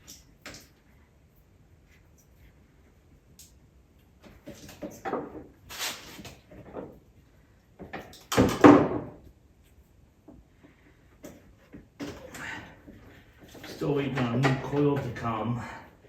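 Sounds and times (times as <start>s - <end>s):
parts knocking and rattling: 7.8s - 9.3s, 10.2s - 15.6s.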